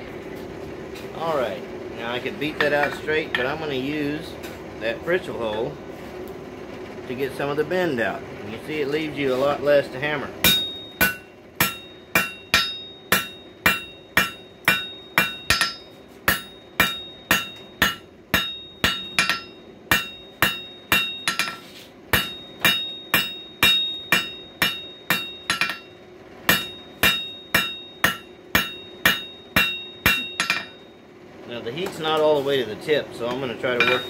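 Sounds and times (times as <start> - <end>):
hammer ringing on anvil: 2.6 - 3.6, 10.4 - 31.0, 33.7 - 34.0.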